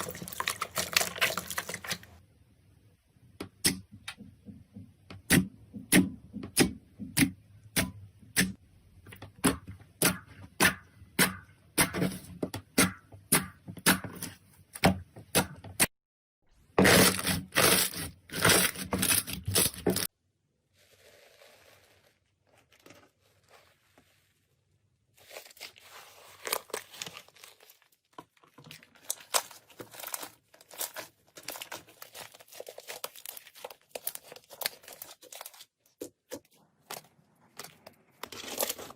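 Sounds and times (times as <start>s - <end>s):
slime popping and crackling: 0.0s - 2.2s.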